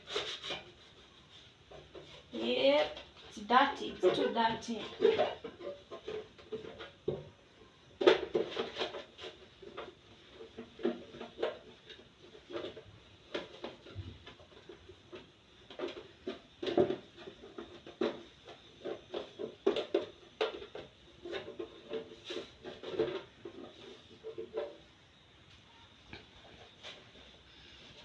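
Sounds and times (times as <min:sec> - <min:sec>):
fridge parts knocking and clattering: 0:03.8 - 0:24.9.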